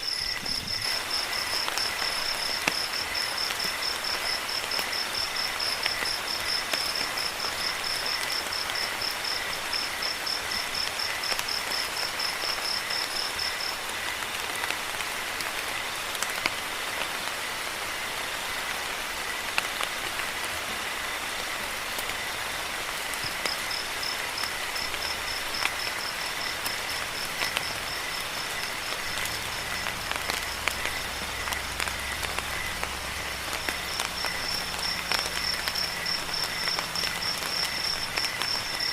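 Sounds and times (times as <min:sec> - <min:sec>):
high insect tone: 0:00.0 - 0:13.8, 0:23.0 - 0:38.9
crickets chirping: 0:00.0 - 0:38.9
steady rain: 0:00.0 - 0:38.9.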